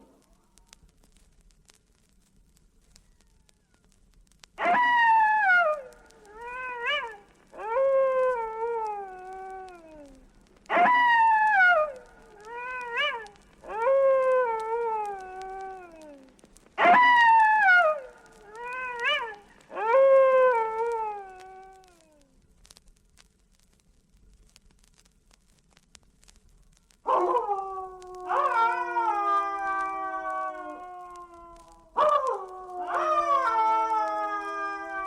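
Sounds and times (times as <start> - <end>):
werewolf howls: 4.6 - 22.2, 27.1 - 35.0.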